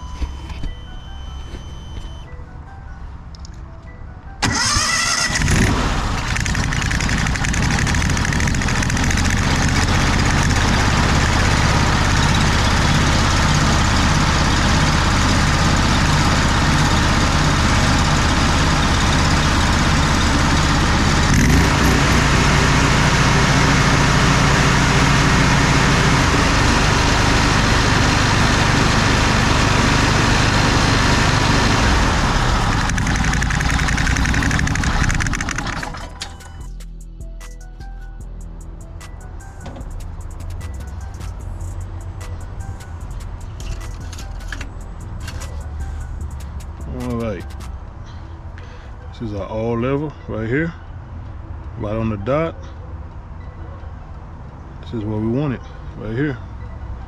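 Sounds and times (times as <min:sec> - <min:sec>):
pressure washer engine running: 0:04.4 - 0:36.1.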